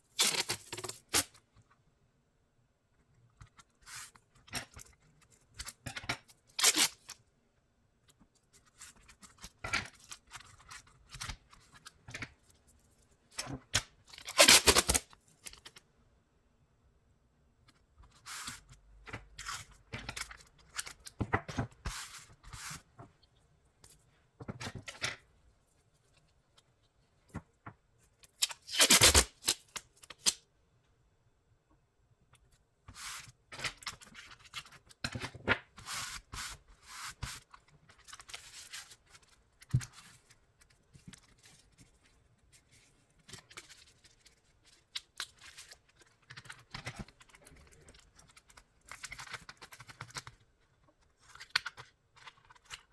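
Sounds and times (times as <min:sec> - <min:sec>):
tape tearing: 0:00.2 - 0:01.3, 0:06.6 - 0:07.2, 0:14.2 - 0:15.1, 0:28.4 - 0:30.4
tape snipping: 0:14.3 - 0:15.0, 0:28.4 - 0:30.4.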